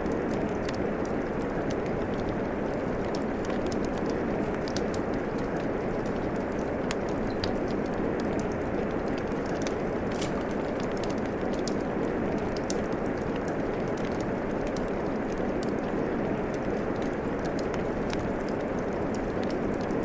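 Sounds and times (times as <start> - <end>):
steady rain hiss: 0.0 - 20.0
wood fire crackling and popping: 0.0 - 20.0.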